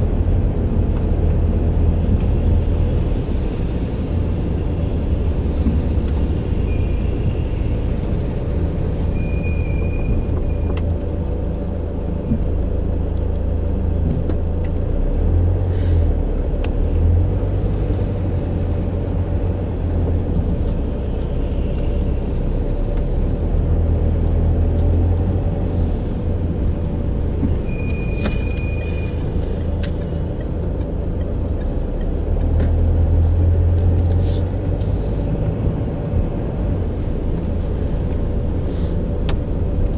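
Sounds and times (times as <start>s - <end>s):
low rumble with hum: 0.0s - 39.9s
short high squeaks: 27.6s - 29.4s.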